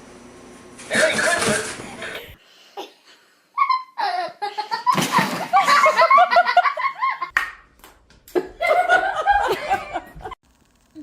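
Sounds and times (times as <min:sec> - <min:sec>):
person laughing hard: 0:08.4 - 0:10.4.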